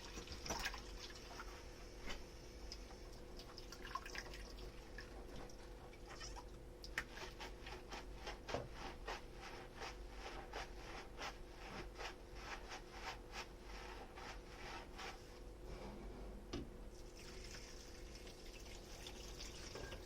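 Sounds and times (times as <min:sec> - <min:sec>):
sponge scrubbing a dish: 0:04.5 - 0:15.8.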